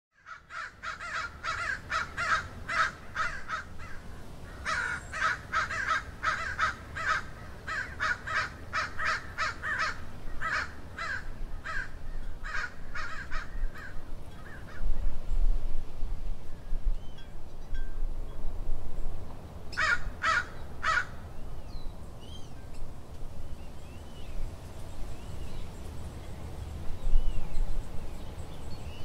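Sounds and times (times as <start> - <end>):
bird harsh calls: 0.2 - 14.9, 19.7 - 21.2.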